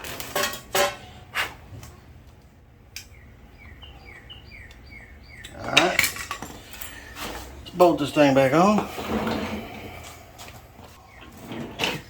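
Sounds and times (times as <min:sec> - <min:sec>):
bird chirping: 0:02.9 - 0:08.5, 0:09.6 - 0:12.0.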